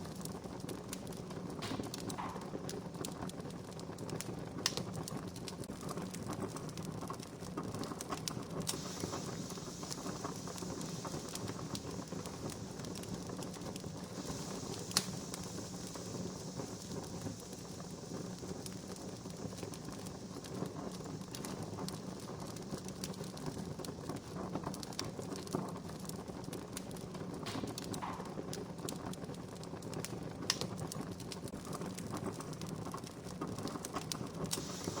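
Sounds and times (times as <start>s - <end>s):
campfire crackling: 0.0s - 35.0s
sharp pops of fire: 0.0s - 35.0s
high hiss: 8.6s - 24.4s, 34.4s - 35.0s.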